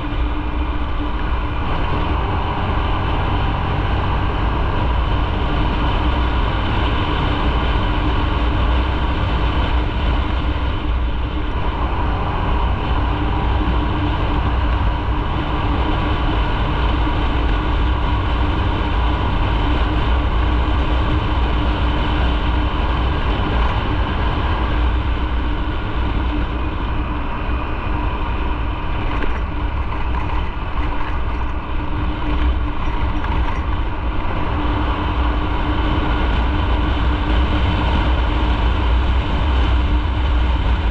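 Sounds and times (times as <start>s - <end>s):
motorcycle engine cruising: 0.0s - 40.9s
riding wind noise: 0.0s - 40.9s.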